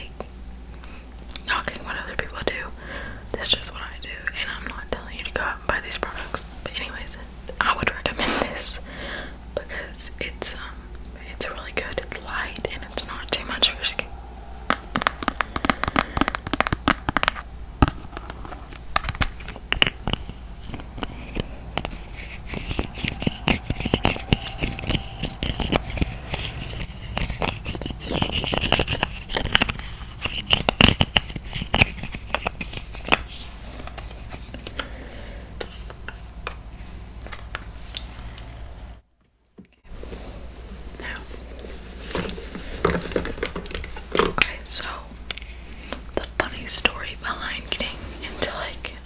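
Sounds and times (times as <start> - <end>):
makeup products tapped and handled: 14.7 - 20.2.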